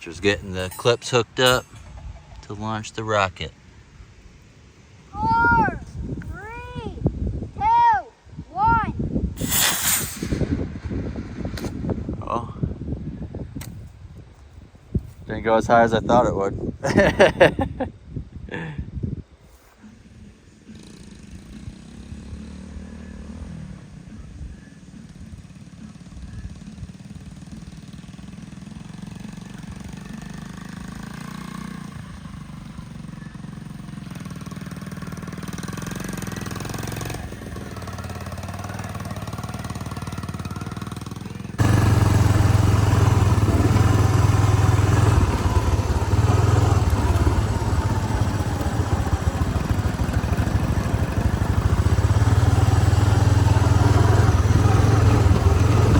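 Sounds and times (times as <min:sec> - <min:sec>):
mini bike engine running: 0:24.4 - 0:55.9.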